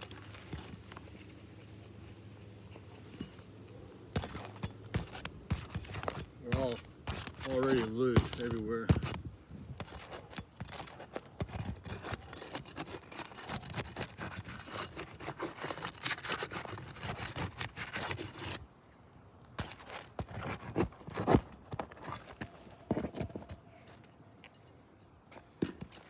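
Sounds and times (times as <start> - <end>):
shingles scraping and clicking: 4.1 - 9.2, 9.8 - 18.6, 19.6 - 24.1, 25.3 - 26.0.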